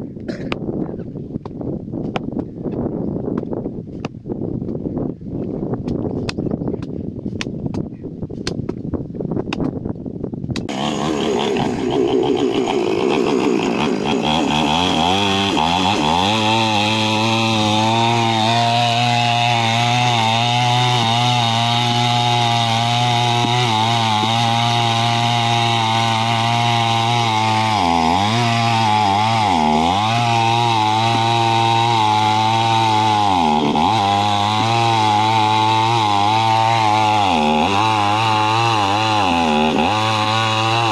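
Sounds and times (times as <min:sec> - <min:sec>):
chainsaw engine running: 0:10.7 - 0:40.9.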